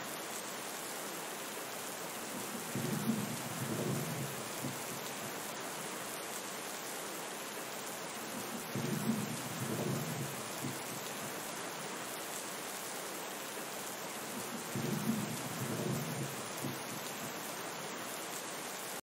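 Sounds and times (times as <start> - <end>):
steady rain falling: 0.0 - 19.0
distant thunder rolling: 2.3 - 5.4, 8.3 - 11.3, 14.3 - 17.4.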